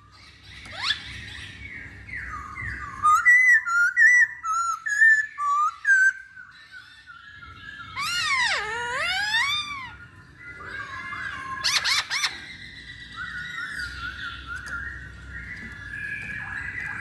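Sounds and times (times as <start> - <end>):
bird singing slurred whistles: 0.8 - 10.0.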